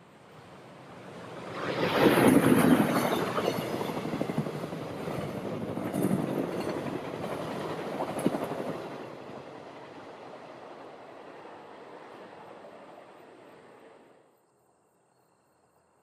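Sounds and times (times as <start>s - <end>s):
train wheels clacking on rail joints: 5.2s - 8.8s.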